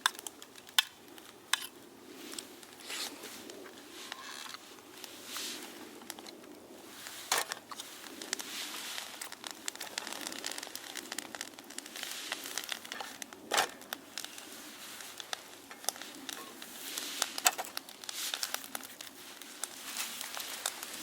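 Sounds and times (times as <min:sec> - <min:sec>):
crinkling and crackling: 0:00.0 - 0:21.0.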